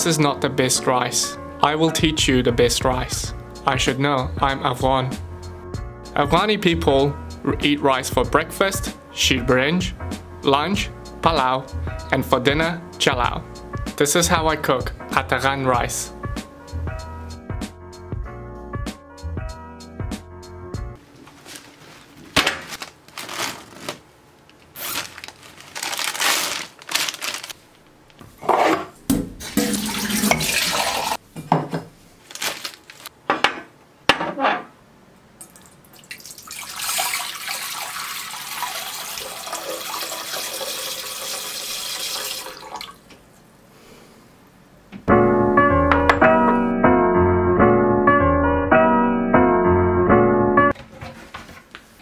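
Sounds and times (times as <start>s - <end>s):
water running into bowl: 29.6s - 31.2s, 35.4s - 43.1s.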